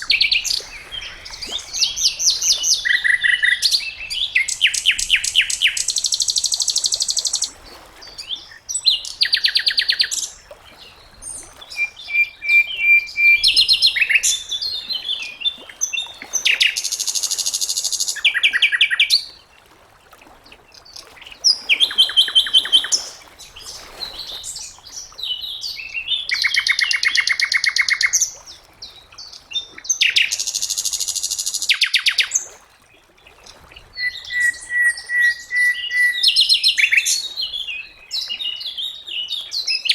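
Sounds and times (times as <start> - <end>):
bird whistle: 11.8 - 14.4, 34.0 - 37.2.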